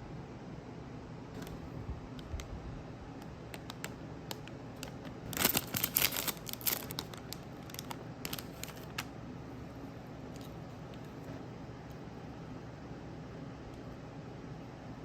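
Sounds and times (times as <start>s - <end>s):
light ticks of packaging: 3.2s - 9.1s
snack packaging crinkling: 3.5s - 9.1s.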